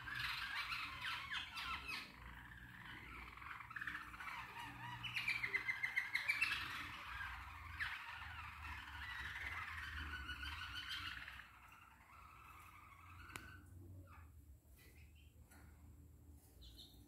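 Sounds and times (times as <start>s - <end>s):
songbird warbling with rapid trills: 0.0s - 13.6s.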